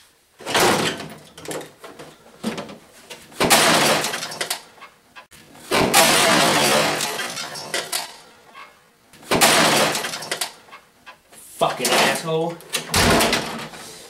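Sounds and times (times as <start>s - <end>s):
loud breaking crashes: 0.4s - 1.1s, 3.4s - 4.4s, 5.6s - 8.2s, 9.2s - 10.4s
television cabinet being smashed: 0.4s - 1.7s, 2.4s - 4.6s, 5.6s - 8.2s, 9.2s - 10.6s, 11.8s - 13.8s.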